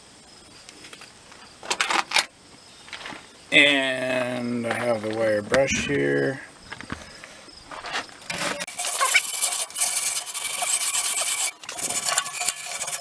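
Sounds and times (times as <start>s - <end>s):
wire brush scrubbing metal: 8.7s - 13.0s.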